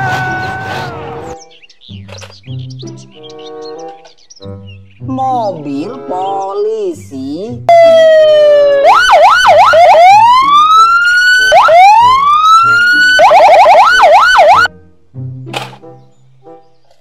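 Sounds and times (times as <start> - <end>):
police siren yelping and wailing: 7.7 - 14.7.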